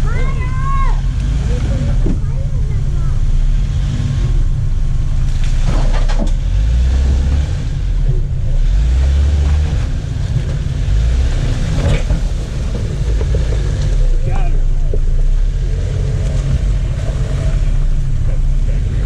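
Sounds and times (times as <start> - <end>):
off-road vehicle engine rumbling: 0.0 - 19.0
scrapes and knocks: 5.2 - 19.0.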